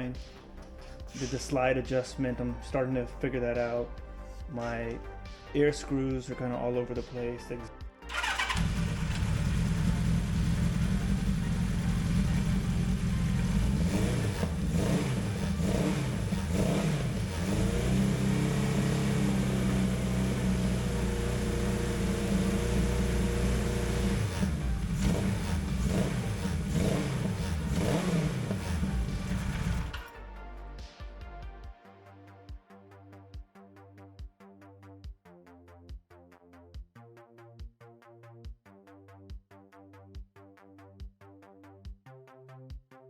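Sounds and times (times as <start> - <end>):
motorcycle engine revving: 8.1 - 30.1.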